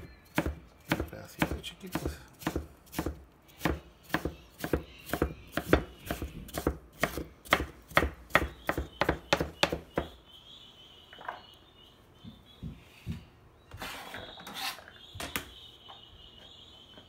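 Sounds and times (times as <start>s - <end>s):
knife chopping on plastic board: 0.3s - 10.1s.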